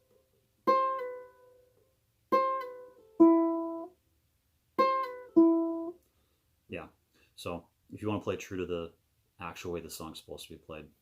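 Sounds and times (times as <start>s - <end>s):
ukulele chords strummed: 0.0s - 4.0s, 4.7s - 6.0s.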